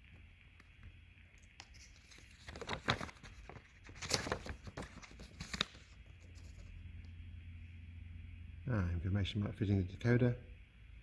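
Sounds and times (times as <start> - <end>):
paper rustling and crinkling: 1.4 - 6.7.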